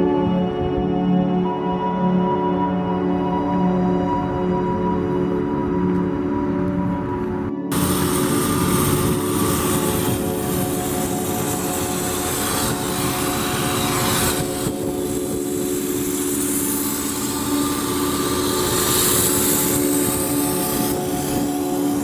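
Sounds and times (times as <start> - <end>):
car engine idling: 5.8 - 22.0.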